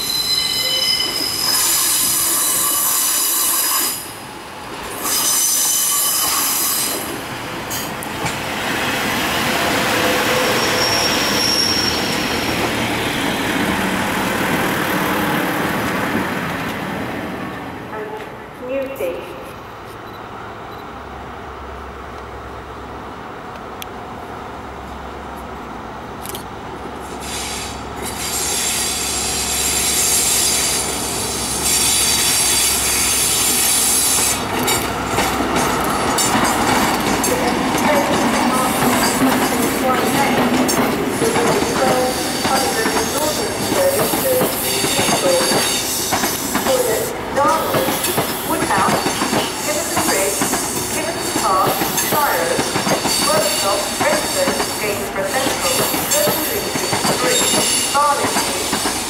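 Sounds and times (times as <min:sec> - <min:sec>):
train wheels squealing: 0:00.0 - 0:04.1, 0:04.9 - 0:07.0, 0:09.9 - 0:12.5, 0:27.2 - 0:34.8, 0:41.9 - 0:46.6, 0:47.9 - 0:54.8, 0:55.7 - 0:58.0.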